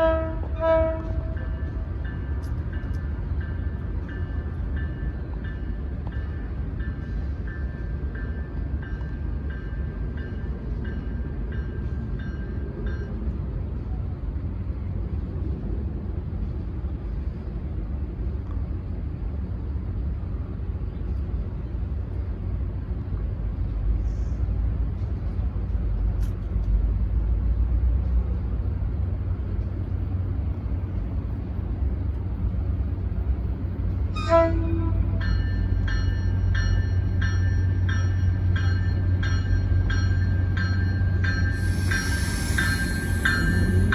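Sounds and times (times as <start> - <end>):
train horn: 0.0 - 1.8, 34.1 - 35.8
train rumbling past: 0.0 - 43.9.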